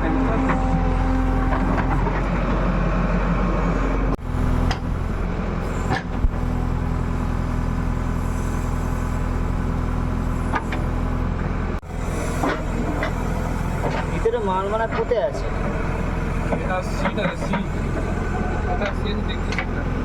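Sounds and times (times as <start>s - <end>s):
diesel engine under load: 0.0s - 20.0s.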